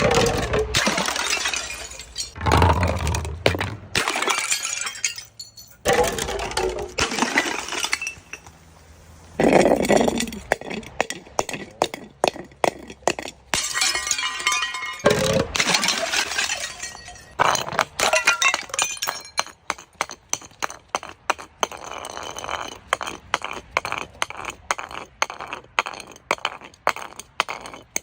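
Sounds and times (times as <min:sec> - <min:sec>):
glass breaking and crunching: 0:00.0 - 0:08.6, 0:13.1 - 0:20.8.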